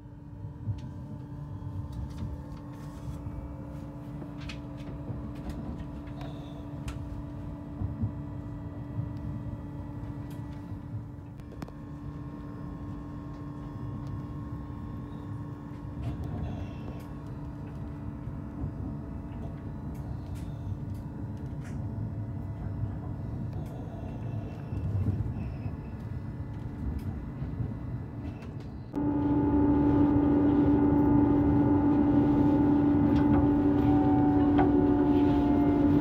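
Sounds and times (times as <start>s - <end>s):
constant hum: 0.0s - 36.0s
train wheels rumbling: 26.6s - 36.0s.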